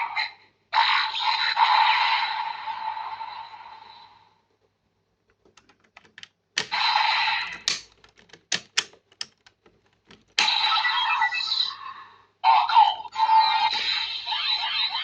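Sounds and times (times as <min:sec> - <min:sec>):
plastic toy clicking and snapping: 0:05.3 - 0:06.8, 0:07.5 - 0:10.5
toy electronic sound effect: 0:13.2 - 0:15.0.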